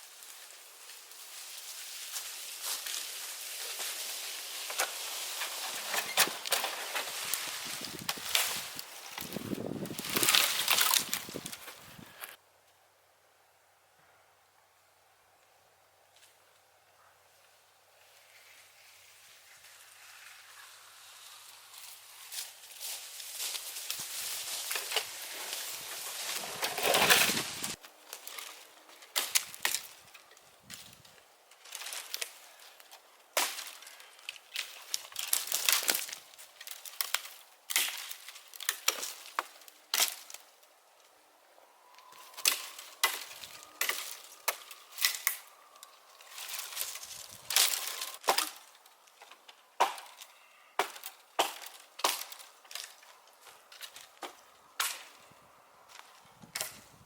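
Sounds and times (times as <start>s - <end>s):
wood splintering: 4.7s - 12.3s, 24.7s - 30.0s, 42.2s - 45.5s, 46.2s - 55.2s
hatchet chopping wood: 49.8s - 50.2s, 50.8s - 52.4s.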